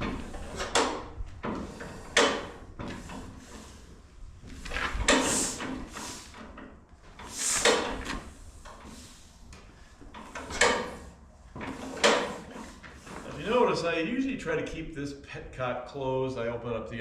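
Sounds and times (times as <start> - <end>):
hissing swishes of engine cranking: 5.0 - 6.6, 7.2 - 13.5.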